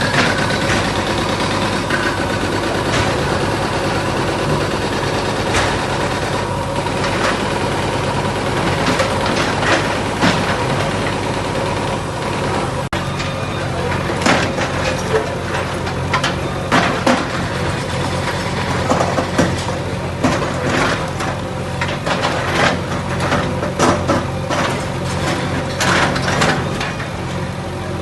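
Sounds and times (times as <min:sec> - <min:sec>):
demolition machine engine running: 0:00.0 - 0:28.0
clanks knocks and cracks: 0:14.2 - 0:27.1.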